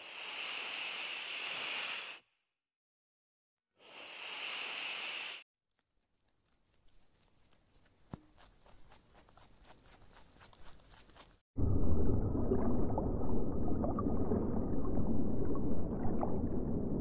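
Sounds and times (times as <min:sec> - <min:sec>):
snake hissing: 0:00.0 - 0:02.3, 0:03.8 - 0:05.4
squirrel chewing a nut: 0:05.7 - 0:11.4.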